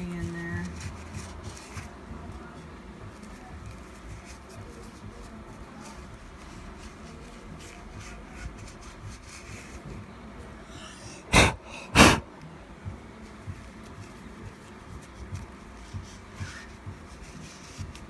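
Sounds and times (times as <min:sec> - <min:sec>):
person coughing: 0:10.9 - 0:12.2.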